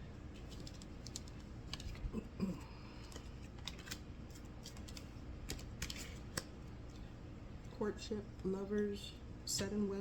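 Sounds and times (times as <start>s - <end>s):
cards clicking and rustling: 0.3s - 2.1s, 3.0s - 7.0s.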